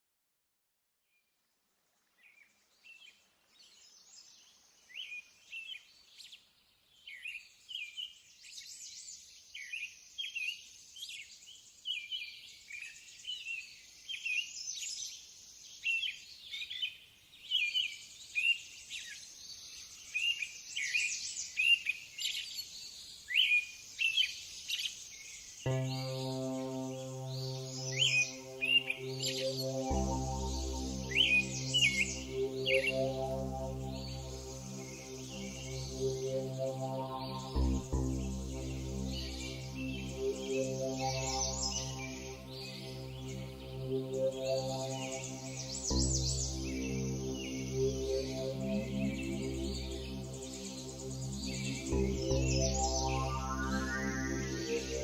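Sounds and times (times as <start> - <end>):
birds chirping and singing: 25.7 - 55.0
low droning tone: 25.7 - 55.0.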